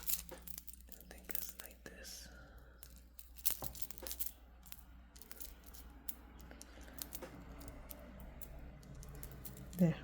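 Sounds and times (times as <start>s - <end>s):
stone beads clicking together: 0.0s - 1.9s, 2.5s - 10.0s.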